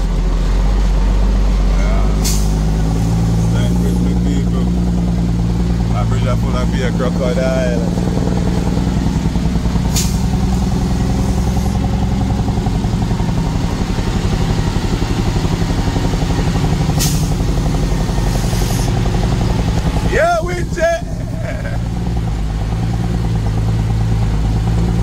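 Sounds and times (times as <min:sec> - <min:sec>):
truck engine running: 0:00.0 - 0:25.0
short sharp air hisses: 0:02.2 - 0:02.6, 0:09.9 - 0:10.3, 0:17.0 - 0:17.4.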